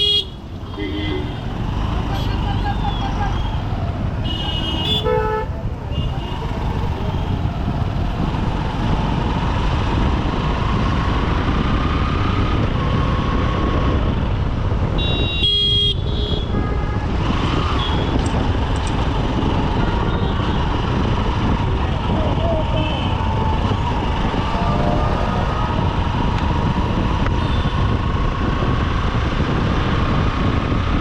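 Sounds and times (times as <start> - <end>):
vehicle horn honking: 0.0 - 1.5, 4.2 - 6.4, 15.0 - 17.0
dense traffic noise: 0.0 - 31.0.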